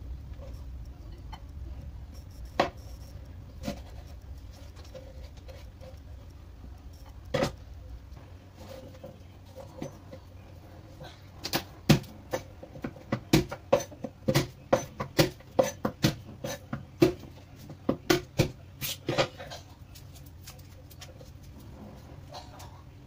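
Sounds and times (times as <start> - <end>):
knife chopping on wooden board: 11.5 - 17.2.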